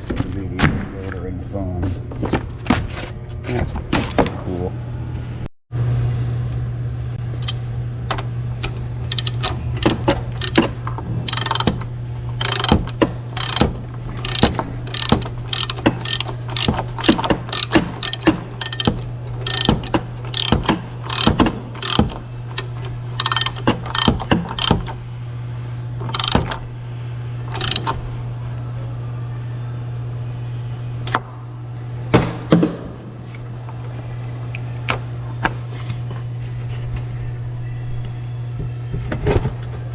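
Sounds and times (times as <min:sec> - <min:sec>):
steady low hum: 0:00.0 - 0:39.9
ratchet wrench clicking: 0:09.1 - 0:10.6, 0:11.3 - 0:11.8, 0:12.4 - 0:24.9, 0:26.0 - 0:26.6, 0:27.5 - 0:27.9.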